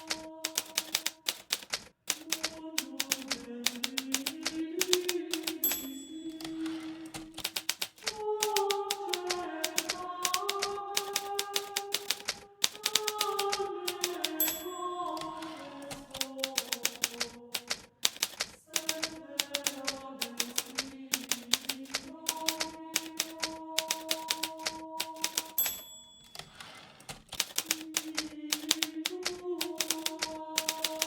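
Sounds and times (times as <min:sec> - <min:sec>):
typewriter bell ding: 0:00.0 - 0:02.4, 0:03.0 - 0:08.7, 0:09.7 - 0:18.9, 0:22.4 - 0:28.0
typewriter carriage return rasp: 0:00.0 - 0:31.0
typewriter keys clicking: 0:00.0 - 0:31.0.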